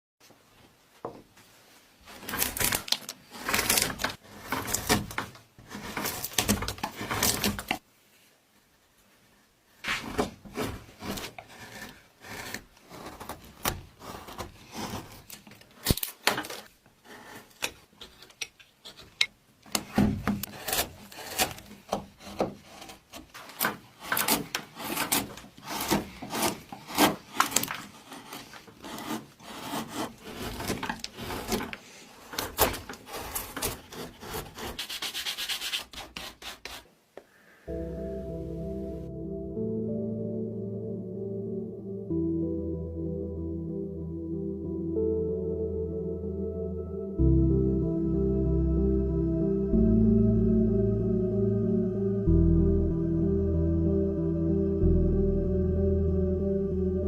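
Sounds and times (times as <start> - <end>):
rasping strokes on wood: 10.5 - 15.3, 24.0 - 31.8, 32.9 - 36.8.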